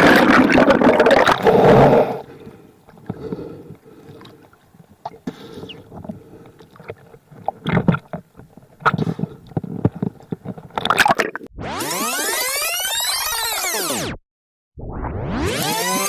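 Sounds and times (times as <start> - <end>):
water sloshing: 3.8 - 11.5.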